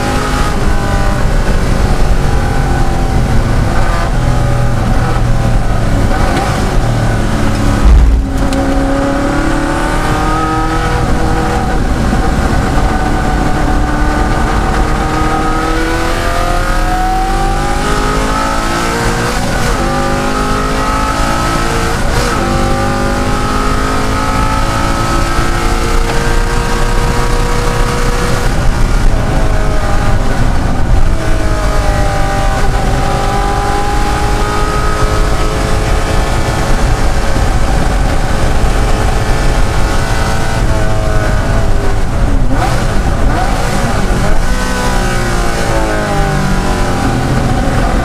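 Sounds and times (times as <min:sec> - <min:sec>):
racing car engine revving: 0:00.0 - 0:48.0
loud thump: 0:07.5 - 0:09.1.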